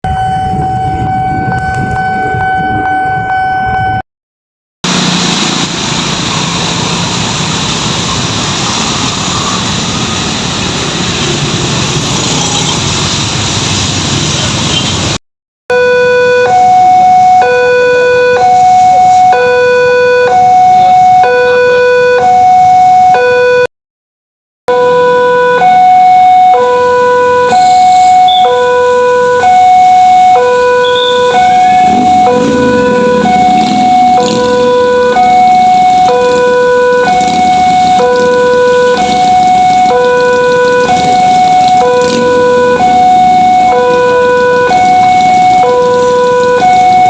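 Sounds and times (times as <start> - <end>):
level crossing warning alarm: 0.0 - 4.0, 4.9 - 12.9, 15.7 - 23.7, 24.7 - 47.0
train rumble and rail noise: 4.9 - 15.2
train horn: 27.5 - 28.7, 30.8 - 35.1.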